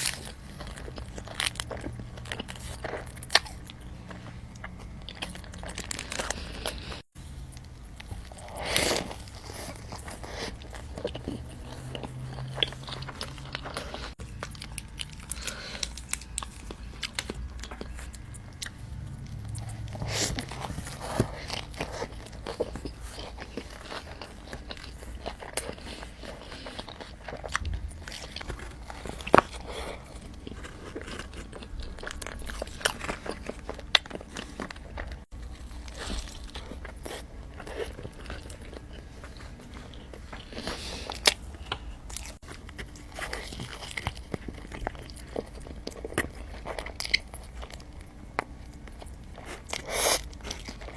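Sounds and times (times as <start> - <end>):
crunchy bites and chewing: 0.0 - 50.9.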